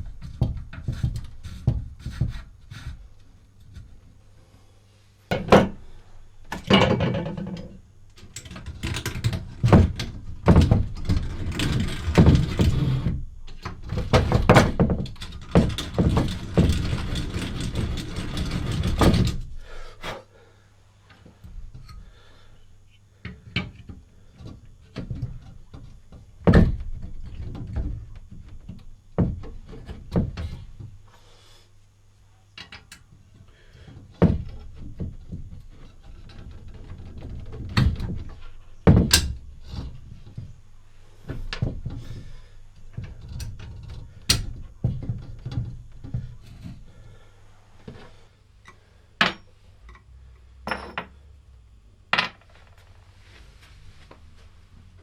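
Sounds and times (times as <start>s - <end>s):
hard parts knocking on bench: 5.3s - 5.8s, 6.5s - 7.8s, 49.2s - 49.5s, 50.7s - 51.2s.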